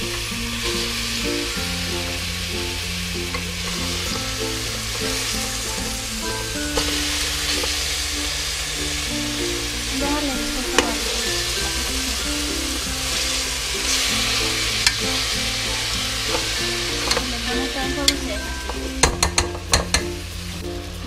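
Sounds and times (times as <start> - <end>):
chicken sizzling in hot oil: 0.0 - 21.0
metal spoon clinking on pot: 18.1 - 20.1.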